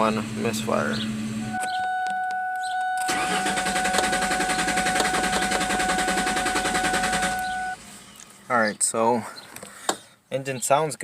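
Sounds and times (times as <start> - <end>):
engine cranking without firing: 3.0 - 7.8.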